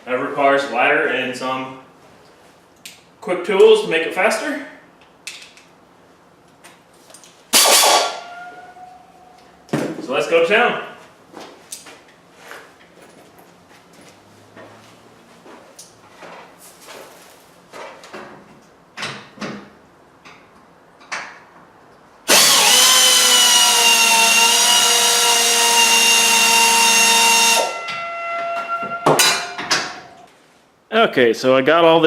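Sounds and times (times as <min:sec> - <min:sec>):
cordless power drill running: 0:22.3 - 0:27.7
knocks and clanks: 0:27.7 - 0:30.3.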